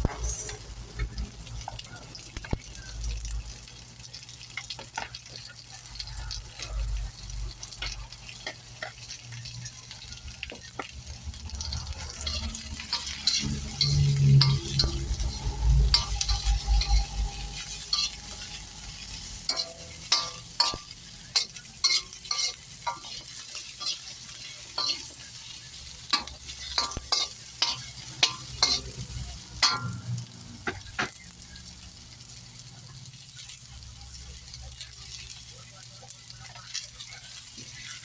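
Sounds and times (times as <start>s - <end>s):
food sizzling in hot oil: 0.0s - 38.0s
spatula scraping a pan: 11.6s - 30.0s.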